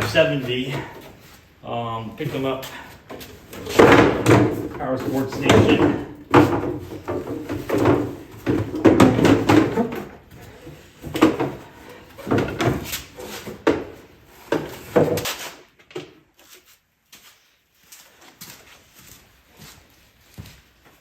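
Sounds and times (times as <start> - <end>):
plastic parts knocking and clattering: 3.0 - 16.2.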